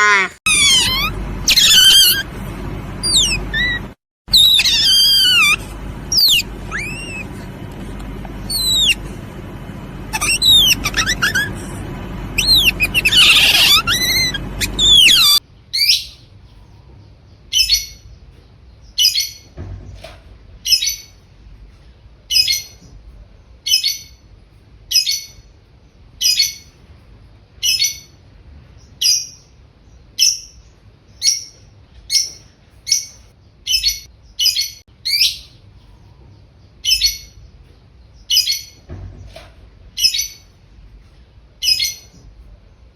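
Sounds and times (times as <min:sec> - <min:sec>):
bird chirps and whistles: 0:00.5 - 0:02.3, 0:03.0 - 0:07.4, 0:08.4 - 0:09.1, 0:10.1 - 0:11.7, 0:12.4 - 0:16.2
short repeated bird call: 0:03.0 - 0:07.6, 0:08.4 - 0:09.1.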